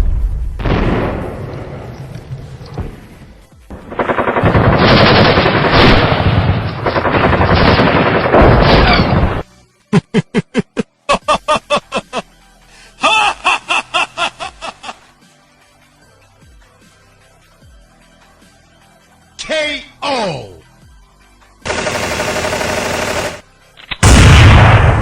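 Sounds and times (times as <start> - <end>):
machine-gun fire: 3.7 - 9.2, 21.7 - 23.4
explosions roar: 24.0 - 25.0.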